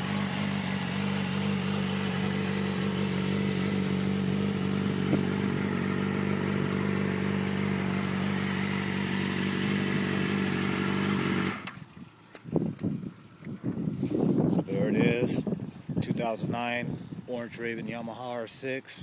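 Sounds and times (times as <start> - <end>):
motorcycle engine idling: 0.0 - 11.8.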